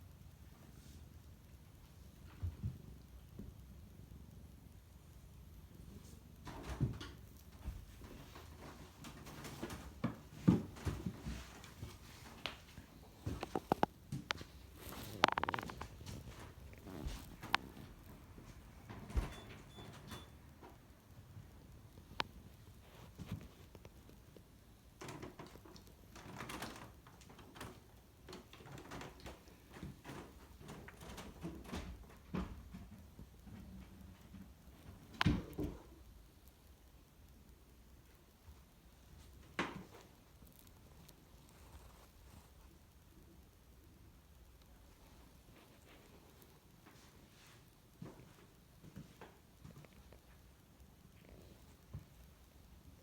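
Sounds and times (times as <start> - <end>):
soft rustling: 7.2 - 20.0, 38.0 - 43.5, 44.6 - 53.0.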